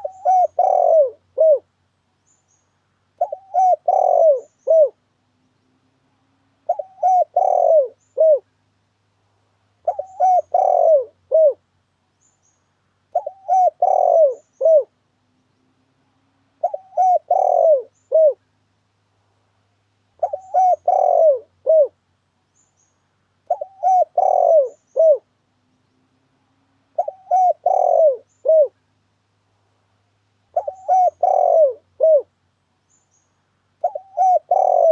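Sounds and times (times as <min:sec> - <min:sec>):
dove cooing: 0:00.0 - 0:01.7, 0:03.2 - 0:05.0, 0:06.6 - 0:08.5, 0:09.8 - 0:11.6, 0:13.1 - 0:15.0, 0:16.6 - 0:18.4, 0:20.2 - 0:22.0, 0:23.5 - 0:25.3, 0:26.9 - 0:28.8, 0:30.5 - 0:32.3, 0:33.8 - 0:34.9.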